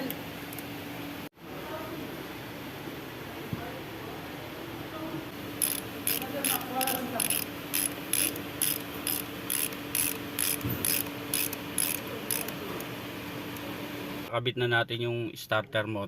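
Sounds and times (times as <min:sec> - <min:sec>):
ratchet wrench clicking: 0:05.6 - 0:12.7.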